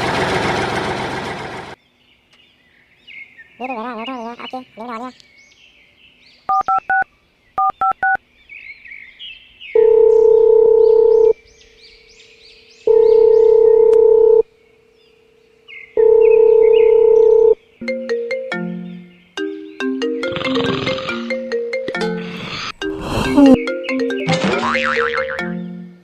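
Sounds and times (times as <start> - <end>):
faint high chirping calls: 2.1 - 21.4
phone ringback tones: 9.8 - 11.3, 12.9 - 14.4, 16.0 - 18.3, 20.0 - 25.4
rising phone beeps: 9.8 - 11.3, 12.9 - 14.4, 16.0 - 17.6, 20.1 - 24.8
ringback melody: 17.8 - 26.0.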